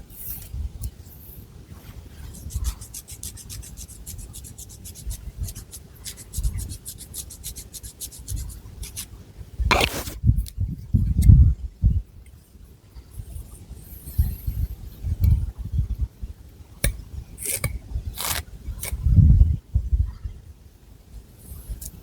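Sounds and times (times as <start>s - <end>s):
fingernails scratching hair: 2.3s - 9.1s, 9.7s - 10.2s.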